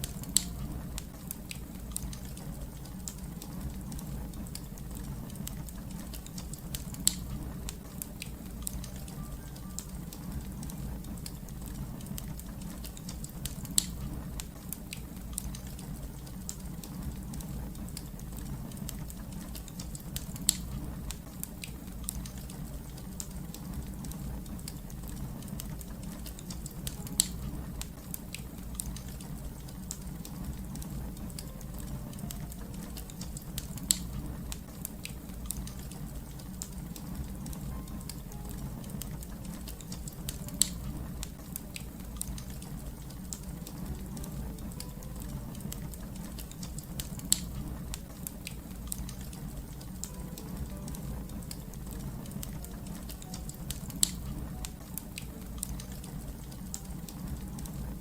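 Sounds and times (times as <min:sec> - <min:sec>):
low rumble: 0:00.0 - 0:09.2, 0:10.0 - 0:14.6, 0:22.0 - 0:48.1
fire crackling: 0:00.0 - 0:58.0.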